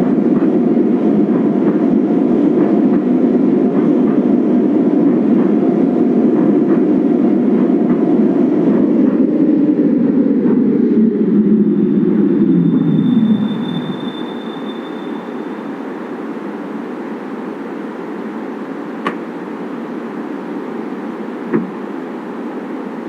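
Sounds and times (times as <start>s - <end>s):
light rail train rumbling: 0.0s - 23.0s
thin high whine: 8.8s - 23.0s.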